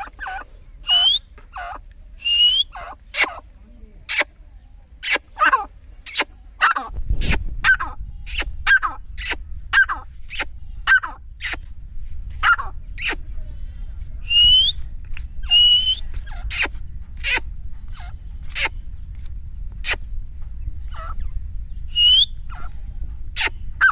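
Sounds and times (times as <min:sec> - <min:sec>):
bird calling sharply: 0:00.0 - 0:11.7, 0:14.2 - 0:20.2, 0:21.9 - 0:23.9
low rumbling noise: 0:00.0 - 0:23.9
short rising whistles: 0:00.8 - 0:01.3, 0:02.2 - 0:02.7, 0:14.2 - 0:16.1, 0:21.9 - 0:22.4.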